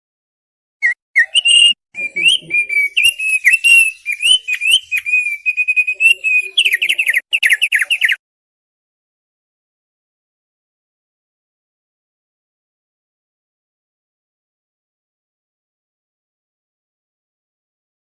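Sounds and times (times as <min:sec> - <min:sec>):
bird whistling song: 0:00.8 - 0:08.2.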